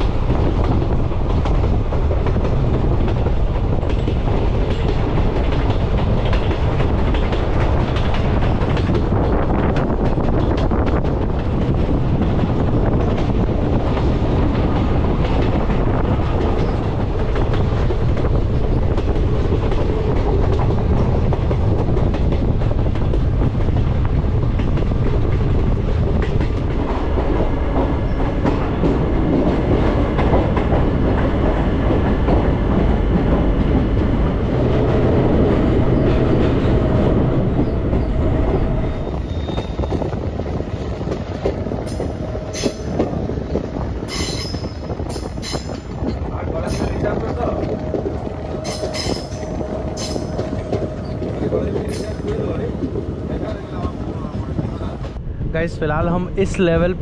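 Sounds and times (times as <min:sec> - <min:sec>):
wheels clicking over rail joints: 0:00.0 - 0:55.2
train coaches rumbling: 0:00.0 - 0:57.0.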